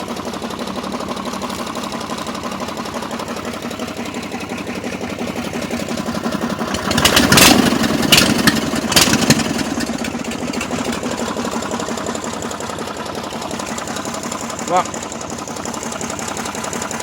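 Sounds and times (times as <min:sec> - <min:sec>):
vehicle engine idling: 0:00.0 - 0:17.0
engine sharp cracks: 0:05.1 - 0:17.0.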